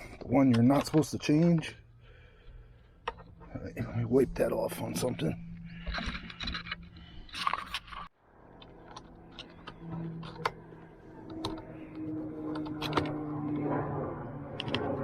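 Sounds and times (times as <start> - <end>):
metal parts clicking and rattling: 5.0 - 10.5.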